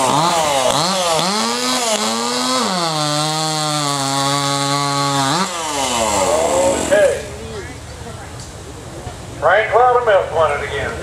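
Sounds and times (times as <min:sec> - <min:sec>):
chainsaw cutting log: 0:00.0 - 0:07.4.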